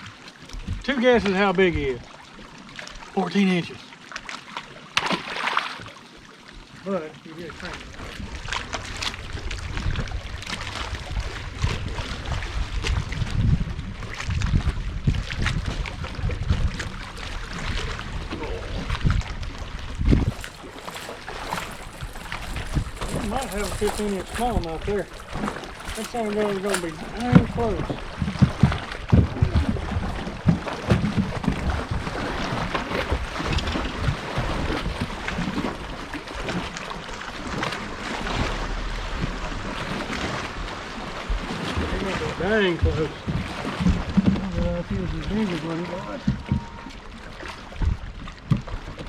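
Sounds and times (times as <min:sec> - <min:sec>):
wind rumbling on microphone: 0:00.0 - 0:00.9, 0:07.3 - 0:49.0
water lapping against boat hull: 0:00.0 - 0:49.0
clicks and knocks on boat deck: 0:21.5 - 0:31.7, 0:42.8 - 0:44.6, 0:46.1 - 0:47.0.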